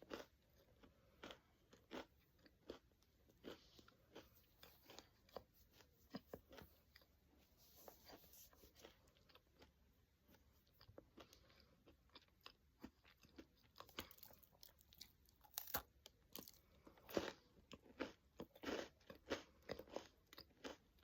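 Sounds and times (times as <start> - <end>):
crunching and chewing pretzel: 0.0 - 21.0.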